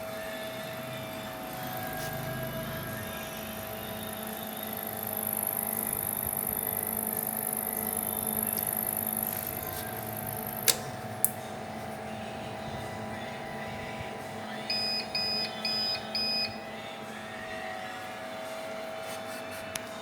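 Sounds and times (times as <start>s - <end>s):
steady electrical hum: 0.0s - 20.0s
short even beeps: 14.7s - 16.6s.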